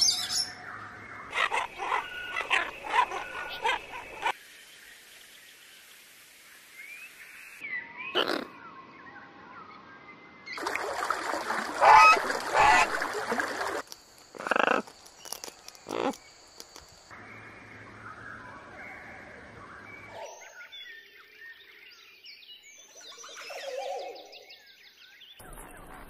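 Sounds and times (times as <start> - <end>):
birds calling and whistling: 0.0 - 4.4, 6.8 - 10.6, 17.1 - 26.0.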